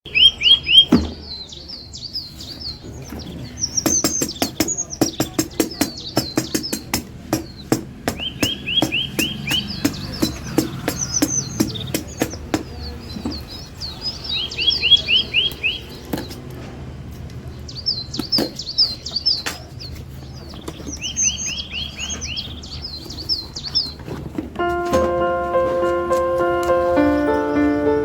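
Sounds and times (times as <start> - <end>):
songbird singing: 0.0 - 16.4, 17.7 - 24.0.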